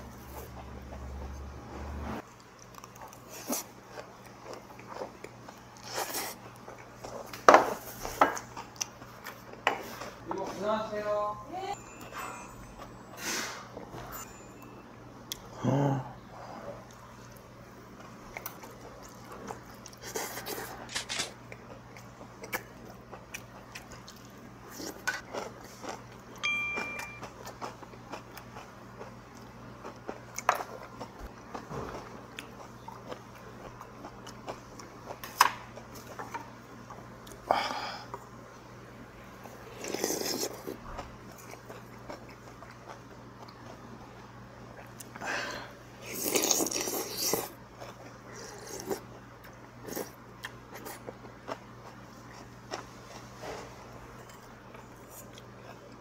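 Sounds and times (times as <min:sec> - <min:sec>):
person chewing and biting: 0:18.2 - 0:36.3, 0:39.8 - 0:44.0, 0:46.0 - 0:53.3.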